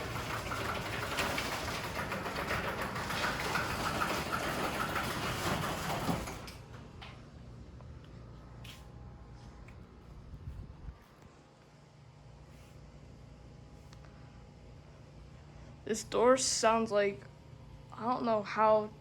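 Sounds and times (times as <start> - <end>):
garage door stopping knock: 0.0 - 6.5
garage door rattling and rumbling: 0.0 - 7.2.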